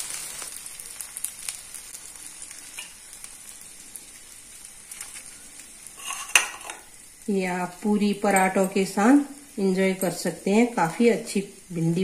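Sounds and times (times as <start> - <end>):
food faintly sizzling in oil: 0.0 - 12.0
fork and spoon clicking and scraping: 6.0 - 6.8.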